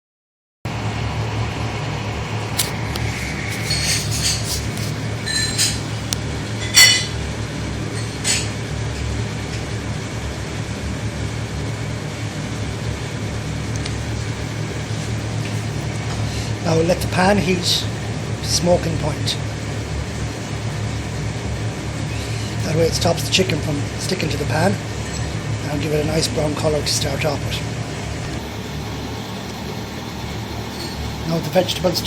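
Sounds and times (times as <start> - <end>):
steady low hum: 0.7 - 32.0
kitchenware clinking and knocking: 5.2 - 5.9, 6.6 - 7.1.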